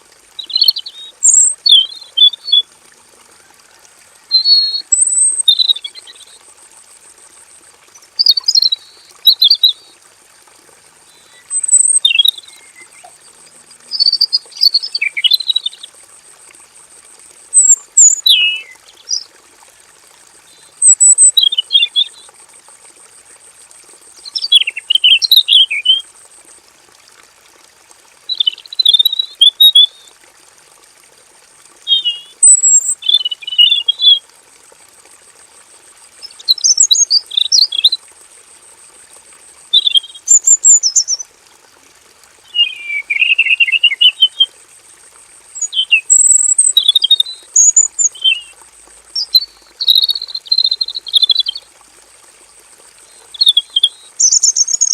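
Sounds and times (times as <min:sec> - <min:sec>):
bird warbling song: 0:00.4 - 0:02.6, 0:08.2 - 0:09.8, 0:11.1 - 0:13.1, 0:13.8 - 0:15.9, 0:17.6 - 0:19.3, 0:20.8 - 0:22.2, 0:24.2 - 0:26.0, 0:28.3 - 0:30.0, 0:31.9 - 0:34.2, 0:39.8 - 0:41.2, 0:42.5 - 0:44.5, 0:45.6 - 0:48.5, 0:49.2 - 0:51.6, 0:53.1 - 0:54.9.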